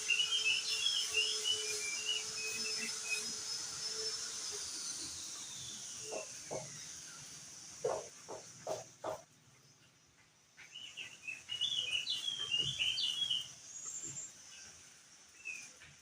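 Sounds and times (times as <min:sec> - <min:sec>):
soft knocks: 0:07.8 - 0:09.3.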